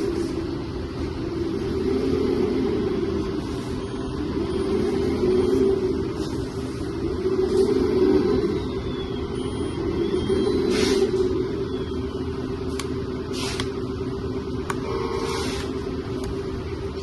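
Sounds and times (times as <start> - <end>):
short hissing bursts: 13.3 - 13.7, 15.1 - 15.7.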